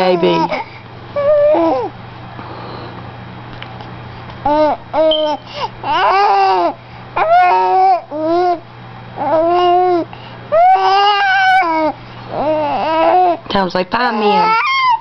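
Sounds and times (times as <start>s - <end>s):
baby babbling and cooing: 0.0s - 2.0s, 4.5s - 8.6s, 9.2s - 13.4s, 14.0s - 15.0s.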